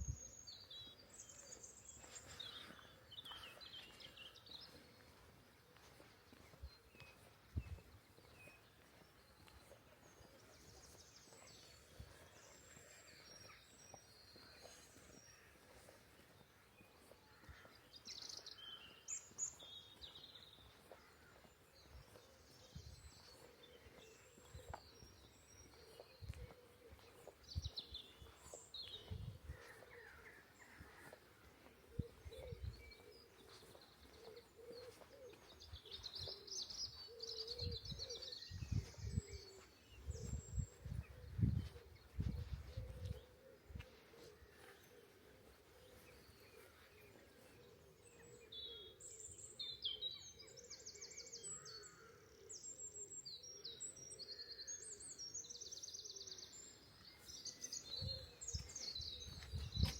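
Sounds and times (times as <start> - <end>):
small birds chirping and singing: 0.0 - 59.9.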